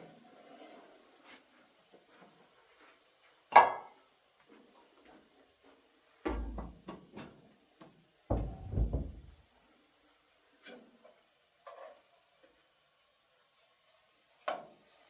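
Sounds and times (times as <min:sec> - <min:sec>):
heavy low thumping with rattling: 0:08.3 - 0:09.4
sharp knock: 0:08.3 - 0:09.4.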